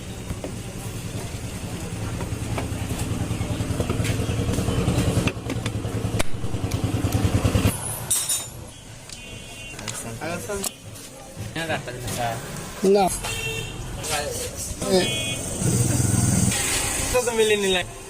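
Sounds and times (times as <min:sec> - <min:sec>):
engine running: 0:00.7 - 0:08.2.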